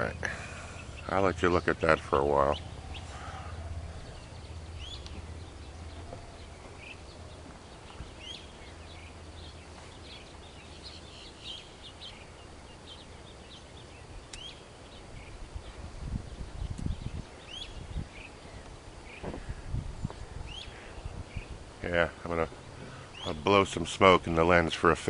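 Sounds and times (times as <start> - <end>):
marsh birds chirping: 0.0 - 25.0
steady low hum: 0.0 - 25.0.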